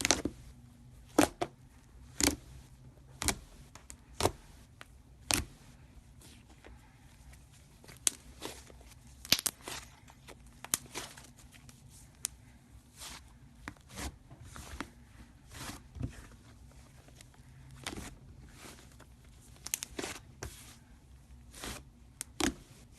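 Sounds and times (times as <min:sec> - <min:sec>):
slime being squished: 0:07.8 - 0:12.4.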